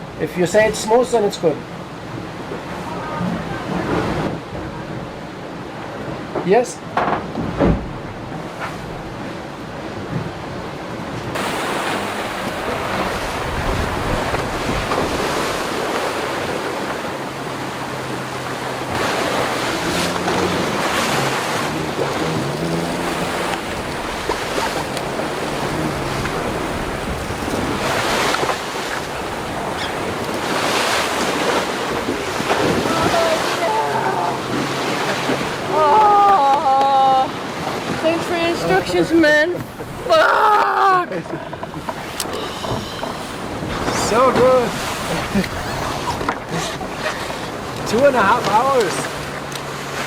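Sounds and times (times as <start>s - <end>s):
wind and sea rushing: 0.0s - 50.0s
wind buffeting microphone: 7.3s - 40.1s.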